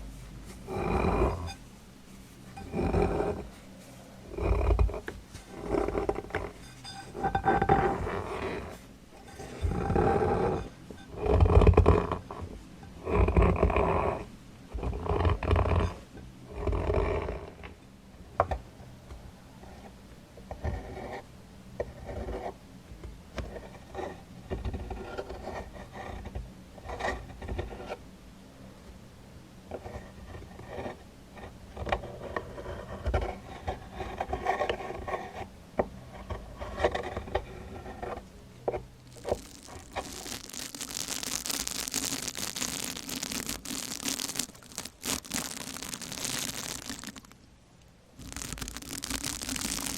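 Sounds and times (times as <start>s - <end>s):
scraping and rubbing strokes: 0.0s - 12.4s, 32.0s - 47.4s, 48.2s - 49.9s
crinkling hiss: 39.0s - 49.9s.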